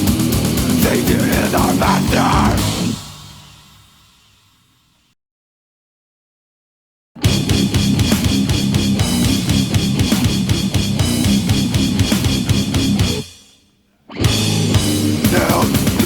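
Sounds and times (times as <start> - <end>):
death metal band playing: 0.0 - 3.9, 7.2 - 13.3, 14.2 - 16.0
distorted guitar: 0.0 - 4.0, 7.2 - 13.4, 14.1 - 16.0
fast drum kit: 0.0 - 4.2, 7.2 - 13.3, 14.3 - 16.0.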